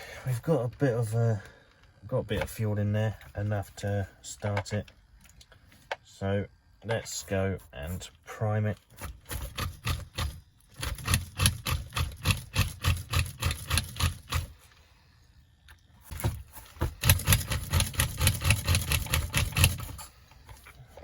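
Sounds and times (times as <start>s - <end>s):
model car engine priming strokes: 9.0s - 14.8s, 16.1s - 21.0s.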